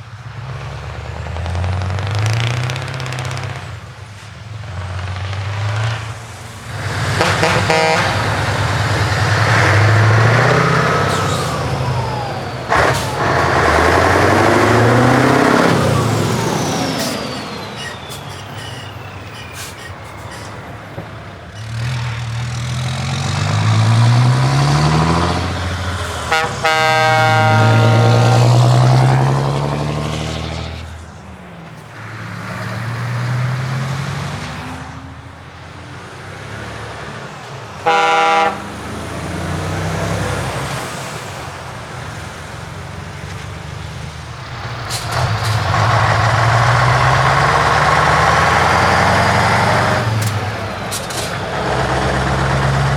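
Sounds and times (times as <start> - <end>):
trucks driving past: 0.0 - 52.9
truck horn: 6.7 - 17.7, 21.6 - 30.8, 37.8 - 41.4.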